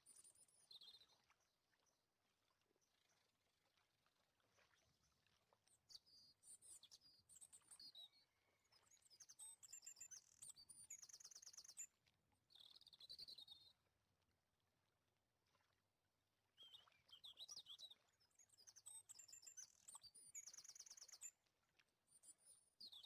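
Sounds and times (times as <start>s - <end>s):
small bird chirping: 16.6s - 21.3s.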